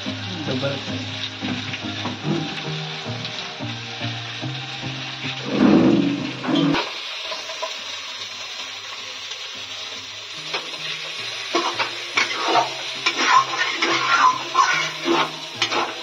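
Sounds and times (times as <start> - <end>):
chicken sizzling in hot oil: 0.0 - 16.0
spatula scraping a pan: 11.5 - 16.0.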